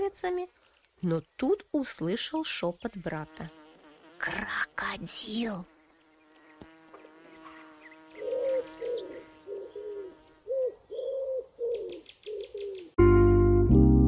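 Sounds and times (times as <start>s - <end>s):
bird cooing: 8.1s - 13.0s
loud piano music: 13.0s - 14.0s.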